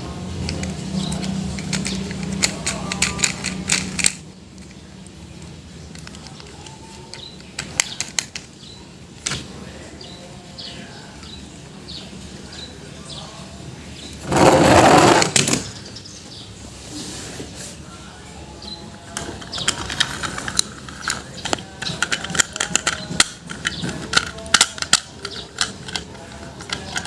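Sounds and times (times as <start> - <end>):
sharp clicks and taps: 0.4 - 4.8.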